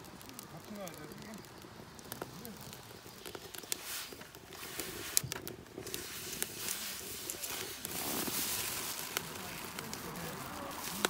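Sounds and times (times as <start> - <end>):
food sizzling in oil: 0.0 - 11.0
oil popping and crackling: 0.0 - 11.0.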